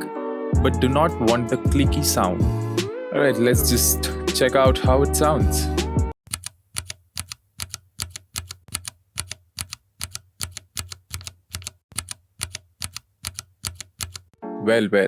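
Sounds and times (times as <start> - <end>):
mechanical keyboard keys thocking: 7.2 - 14.3.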